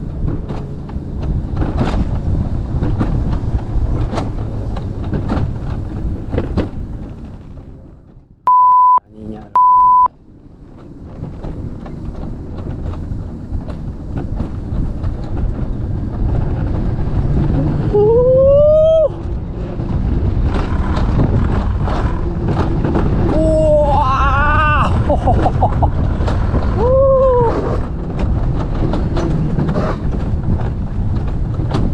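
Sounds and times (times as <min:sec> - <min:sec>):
coaster sled rumbling on rail: 0:00.0 - 0:08.4, 0:10.2 - 0:31.9
electronic beeps: 0:08.5 - 0:09.0, 0:09.6 - 0:10.1
rider whooping: 0:17.5 - 0:19.3, 0:23.1 - 0:27.9.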